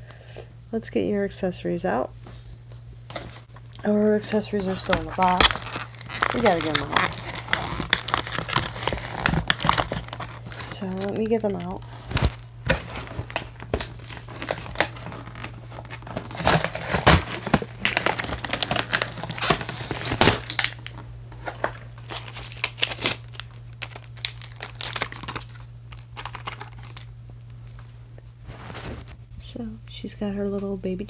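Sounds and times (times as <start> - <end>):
toy packaging crinkling and tearing: 3.8 - 27.1.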